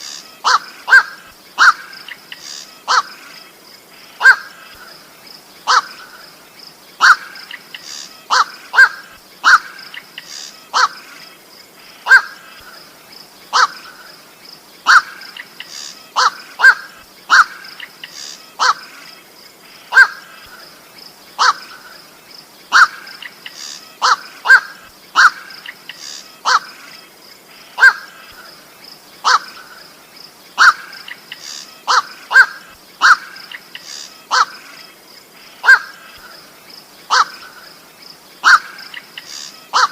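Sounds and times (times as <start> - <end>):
bird giving harsh calls: 0.0 - 3.4, 5.7 - 6.2, 7.0 - 11.1, 13.5 - 14.0, 14.8 - 19.0, 19.8 - 20.4, 21.4 - 22.0, 22.7 - 26.8, 27.6 - 28.5, 29.2 - 29.8, 30.6 - 36.4, 37.1 - 37.7, 38.4 - 39.9.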